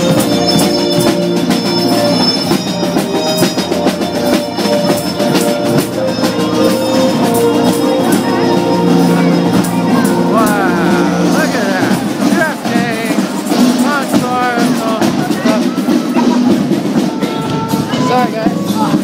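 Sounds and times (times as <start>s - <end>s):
drum line playing: 0.0s - 19.0s
music with held notes: 0.0s - 19.0s.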